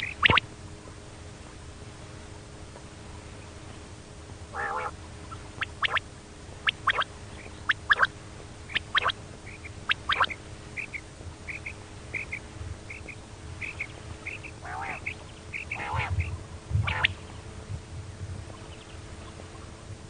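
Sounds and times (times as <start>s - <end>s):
quail calling: 0.0s - 0.4s, 4.5s - 6.0s, 6.6s - 17.2s
faint steady hum: 0.0s - 20.0s.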